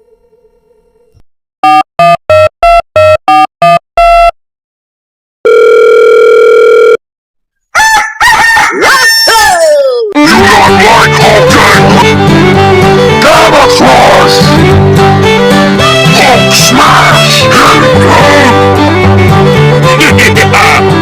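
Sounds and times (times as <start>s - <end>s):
short electronic beeps: 1.6s - 4.4s
rooster crowing: 7.7s - 9.7s.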